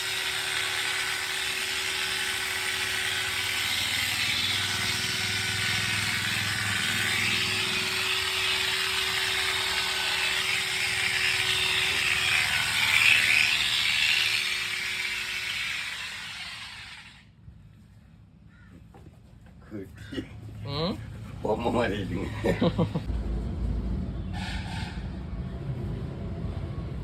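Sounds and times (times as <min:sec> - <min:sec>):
clippers cutting wool: 0:00.0 - 0:17.2
electric clippers motor hum: 0:00.0 - 0:17.2.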